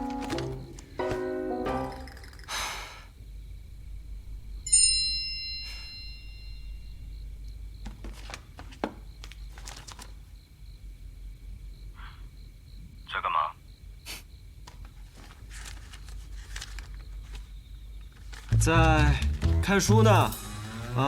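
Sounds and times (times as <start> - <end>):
bright chime: 4.7 - 6.9.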